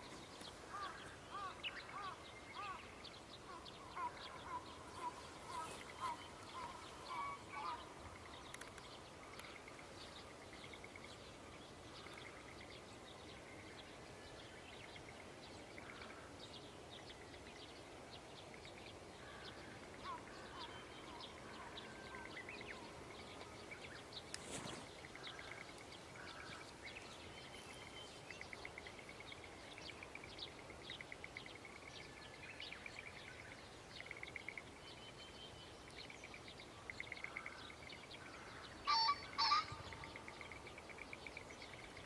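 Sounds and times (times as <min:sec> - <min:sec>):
soft outdoor background hiss: 0:00.0 - 0:42.0
bird repeating loud calls: 0:38.8 - 0:40.2.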